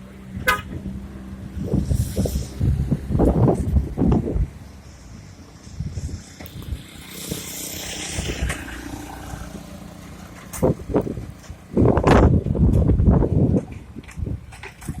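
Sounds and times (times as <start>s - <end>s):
tyres hissing on wet road: 1.0s - 10.4s.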